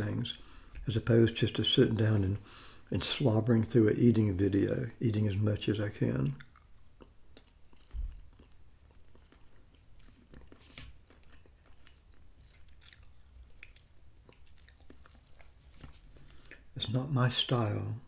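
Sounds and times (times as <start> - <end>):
faint chewing: 6.2 - 16.8.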